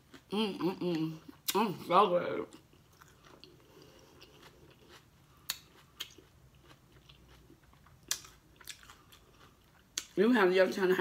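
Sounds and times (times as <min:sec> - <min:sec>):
chewing: 0:02.5 - 0:10.2.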